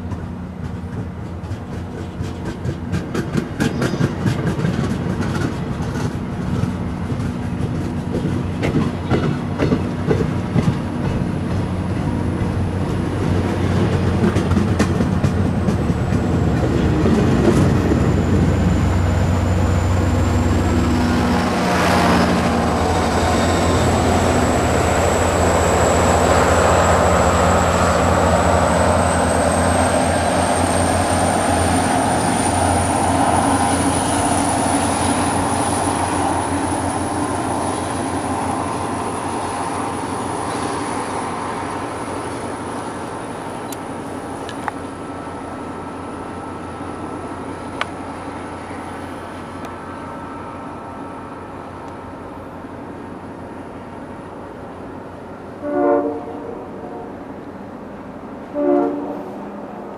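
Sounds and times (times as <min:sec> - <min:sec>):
wheels clicking over rail joints: 0:00.0 - 0:18.0
train coaches rumbling past: 0:00.0 - 0:59.9.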